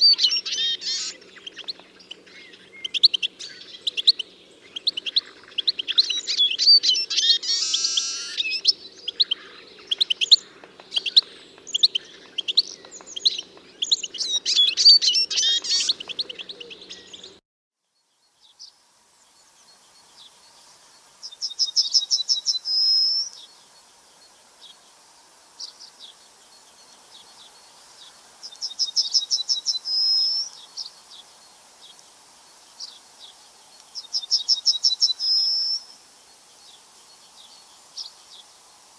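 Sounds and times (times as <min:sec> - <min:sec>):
bird trilling: 0:00.0 - 0:01.2, 0:06.2 - 0:08.6
songbirds chirping: 0:00.0 - 0:38.9.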